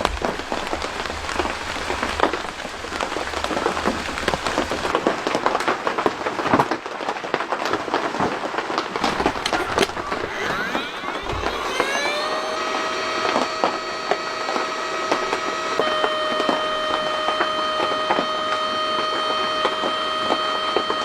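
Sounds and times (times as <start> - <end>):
steam whistling: 0.0 - 5.0, 9.0 - 21.0
wood fire crackling: 0.0 - 6.2.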